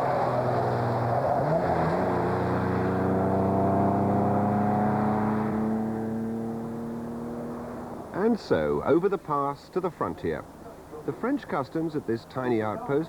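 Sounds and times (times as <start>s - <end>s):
car engine revving hard: 0.0s - 8.1s
road noise: 0.0s - 13.0s.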